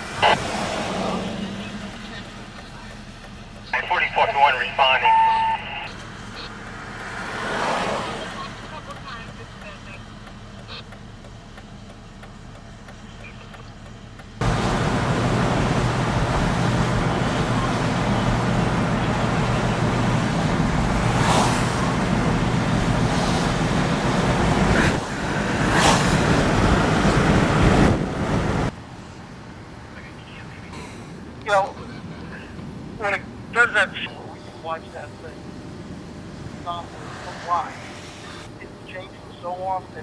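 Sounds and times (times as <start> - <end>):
storm wind and rain rushing: 14.4 - 28.7.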